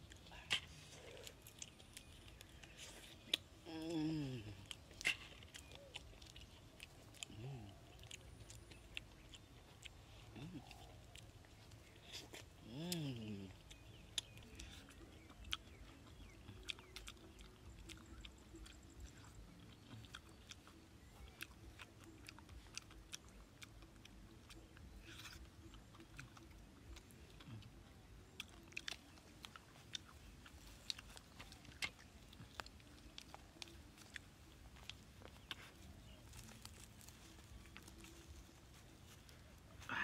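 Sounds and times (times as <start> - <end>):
person chewing and biting: 0.0 - 39.9.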